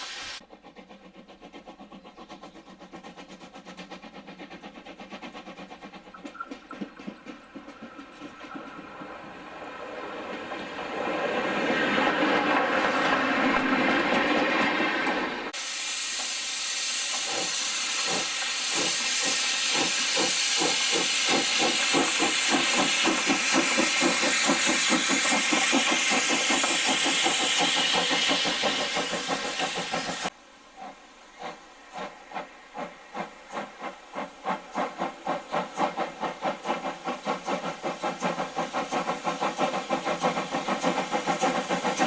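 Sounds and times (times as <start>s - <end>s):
locomotive exhaust beats: 0.0s - 30.4s
steam locomotive hissing: 0.0s - 42.0s.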